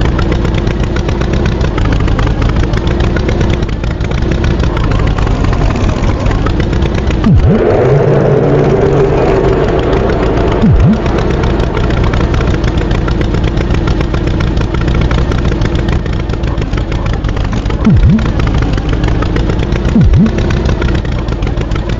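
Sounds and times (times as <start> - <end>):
tractor engine rumbling: 0.0 - 21.9
low swoops in pitch: 7.3 - 12.7.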